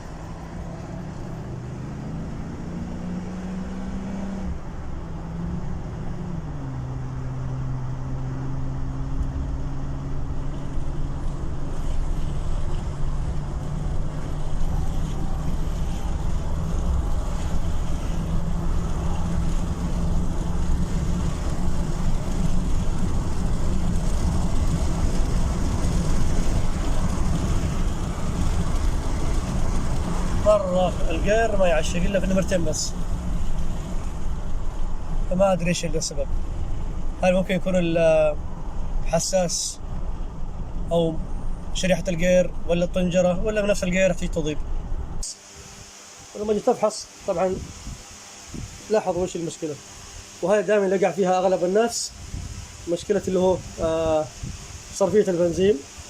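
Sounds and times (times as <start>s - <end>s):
car engine accelerating: 0.0s - 39.1s
road noise: 0.0s - 56.0s.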